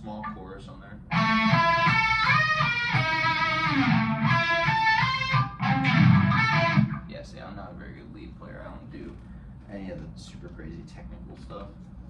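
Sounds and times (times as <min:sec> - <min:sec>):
distorted electric guitar lead: 0:01.1 - 0:07.1.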